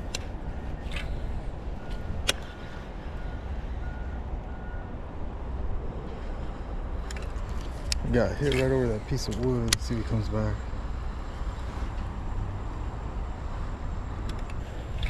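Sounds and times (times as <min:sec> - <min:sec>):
low outdoor rumble: 0:00.0 - 0:15.0
sharp click: 0:01.9 - 0:02.5.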